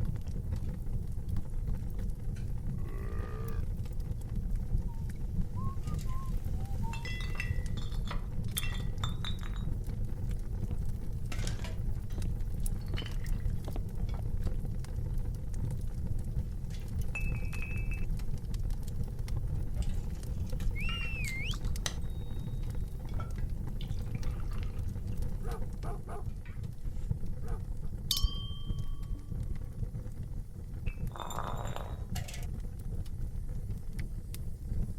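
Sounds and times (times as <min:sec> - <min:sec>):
burning logs crackling: 0:00.0 - 0:34.9
fire low rumble: 0:00.0 - 0:34.9
high whistling tones: 0:04.9 - 0:07.6, 0:20.7 - 0:22.5.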